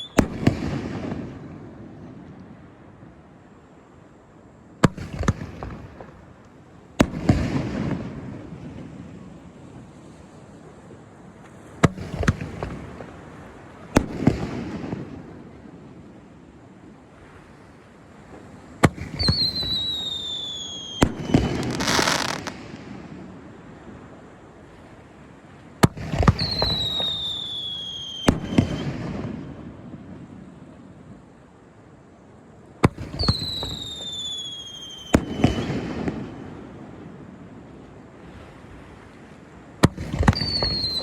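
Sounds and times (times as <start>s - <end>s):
falling firework whistle: 0.0s - 1.7s, 18.8s - 23.1s, 25.8s - 30.1s, 32.8s - 37.0s, 39.8s - 41.0s
fireworks bangs with echoing rumble: 0.1s - 2.0s, 4.8s - 6.3s, 7.0s - 9.9s, 11.8s - 15.9s, 18.8s - 23.4s, 25.8s - 30.4s, 32.8s - 37.4s, 39.7s - 41.0s.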